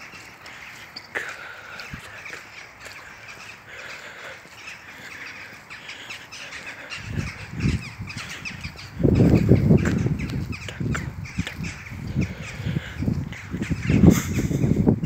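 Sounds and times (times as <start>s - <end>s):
birds calling in quick notes: 0.0s - 15.0s
low rumbles on microphone: 7.0s - 15.0s.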